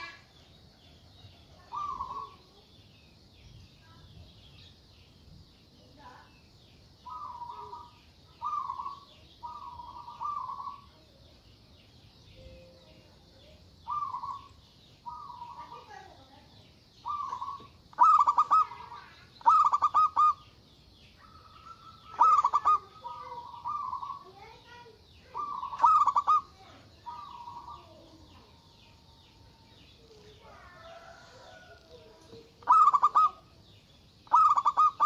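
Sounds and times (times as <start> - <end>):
dove cooing: 1.6 - 2.4, 7.1 - 11.0, 13.8 - 14.5, 17.0 - 20.4, 21.2 - 24.5, 25.2 - 28.6, 30.4 - 33.6, 34.2 - 35.0.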